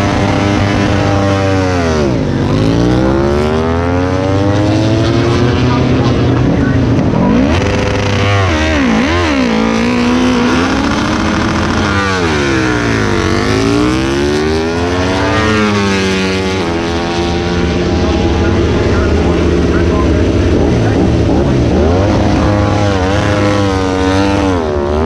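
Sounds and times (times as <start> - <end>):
racing motorcycles revving past: 0.0 - 25.0.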